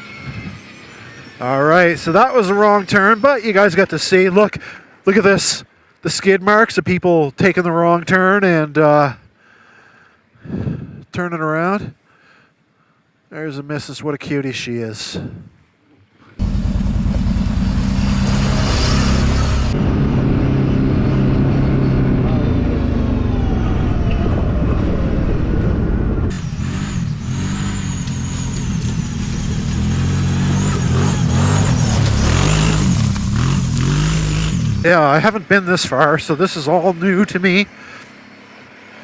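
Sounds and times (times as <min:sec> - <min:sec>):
atv engine revving: 0:16.4 - 0:35.5.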